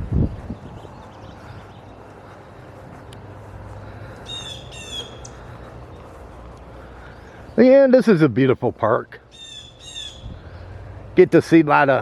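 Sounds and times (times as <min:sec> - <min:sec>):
bird calling rapid high notes: 0:04.2 - 0:05.4.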